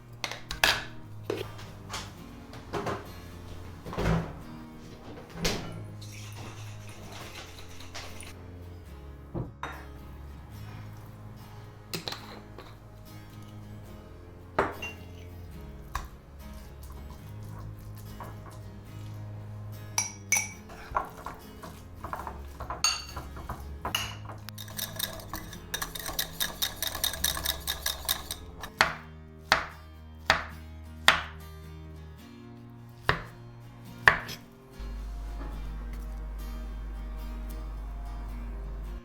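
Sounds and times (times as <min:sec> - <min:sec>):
soft background music: 0:00.0 - 0:39.0
dishes and utensils clinking: 0:00.2 - 0:08.4, 0:09.5 - 0:10.0, 0:11.9 - 0:13.6, 0:14.6 - 0:18.8, 0:19.9 - 0:29.1.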